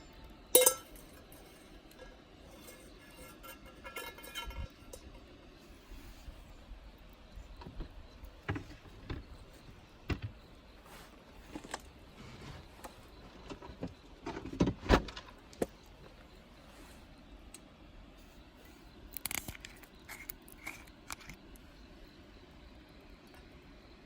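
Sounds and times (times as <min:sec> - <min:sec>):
low steady background noise: 0:00.0 - 0:24.0.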